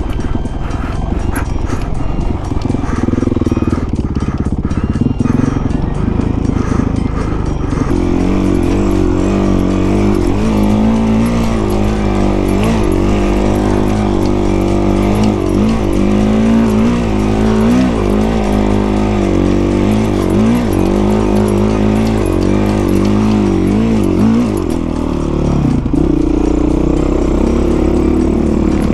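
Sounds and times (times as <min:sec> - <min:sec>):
dirt bike engine running: 0:00.0 - 0:28.9.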